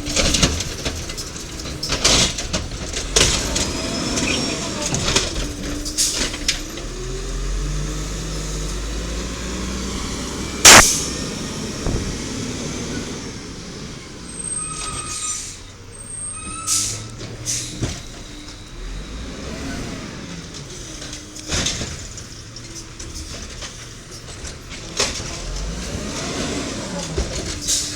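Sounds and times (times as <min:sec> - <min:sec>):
truck engine running: 0:00.0 - 0:27.9
metal clanks: 0:10.6 - 0:13.2.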